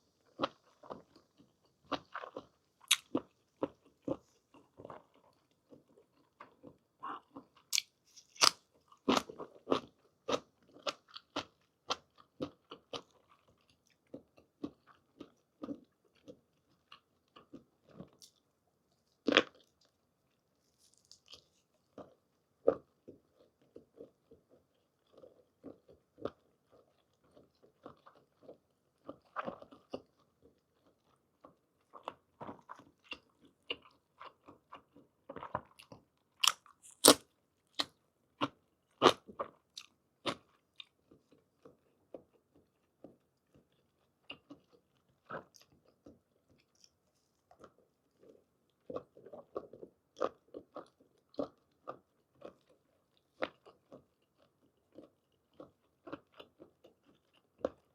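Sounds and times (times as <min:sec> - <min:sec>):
wet chewing: 0:20.8 - 0:57.9.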